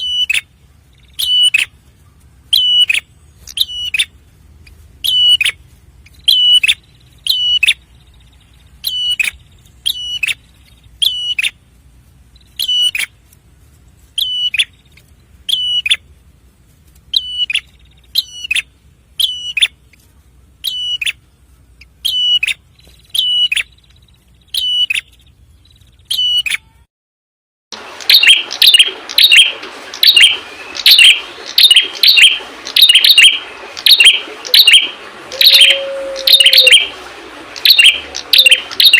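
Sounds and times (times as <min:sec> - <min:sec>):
background hiss: 0:00.0 - 0:26.1
chattering bird chirps: 0:02.5 - 0:11.6, 0:28.1 - 0:36.8, 0:37.6 - 0:38.9
bird chip notes: 0:28.0 - 0:36.9.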